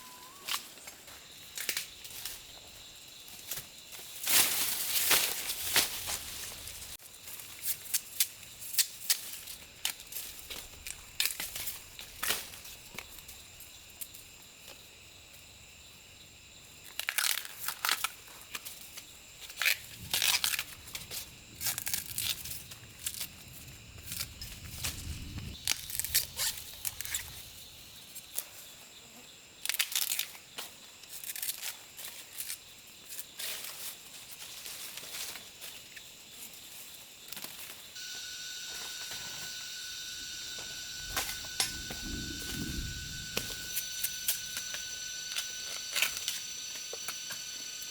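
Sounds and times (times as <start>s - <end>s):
dry leaves rustling and tearing: 4.0s - 7.0s, 17.0s - 18.1s, 24.9s - 27.3s, 29.7s - 30.3s
faint high-pitched hum: 38.0s - 47.9s.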